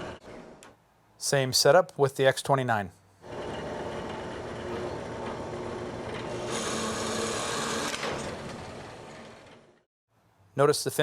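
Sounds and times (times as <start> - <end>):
drill press motor hum: 3.2 - 9.6
drill bit cutting plastic: 4.0 - 8.0.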